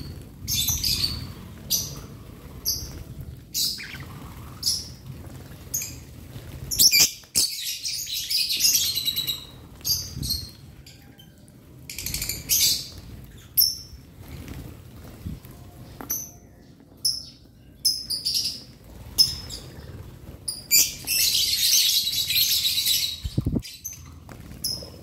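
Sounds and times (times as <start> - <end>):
lovebirds chirping: 0.0 - 5.1.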